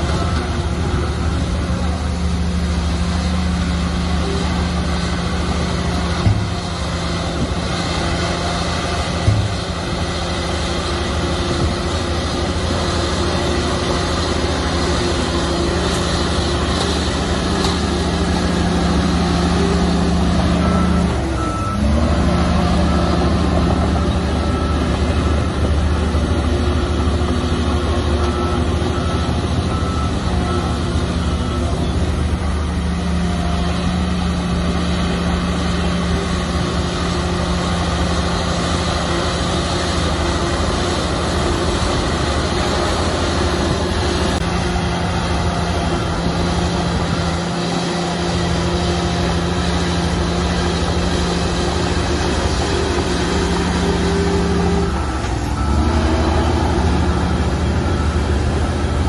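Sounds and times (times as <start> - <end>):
bulldozer diesel engine: 0.0 - 59.0
reversing alarm beeping: 2.2 - 59.0.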